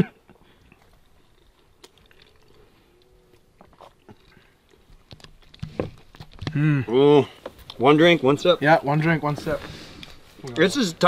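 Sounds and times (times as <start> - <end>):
chewing bacon: 0.7 - 5.6.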